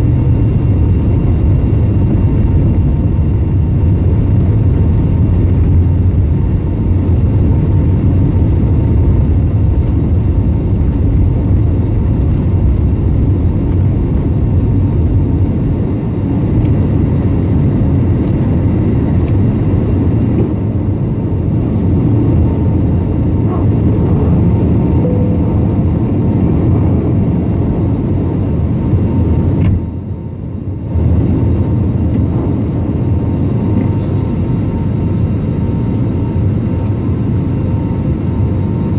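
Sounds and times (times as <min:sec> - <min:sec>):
airliner cabin engine rumble: 0:00.0 - 0:38.9.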